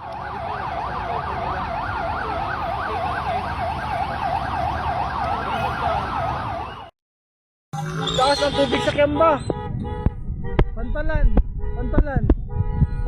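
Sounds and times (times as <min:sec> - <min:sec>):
siren in fast yelp: 0:00.0 - 0:06.9
slow sweeping siren: 0:00.0 - 0:06.9.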